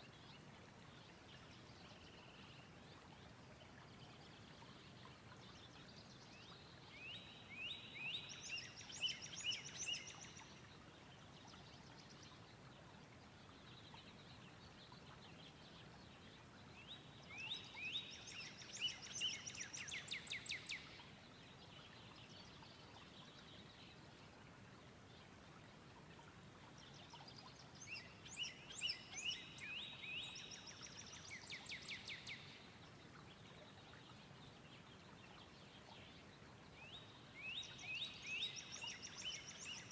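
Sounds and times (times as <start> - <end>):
soft background hiss: 0.0 - 39.9
songbird singing trills: 6.5 - 10.8, 26.8 - 34.4, 36.8 - 39.9.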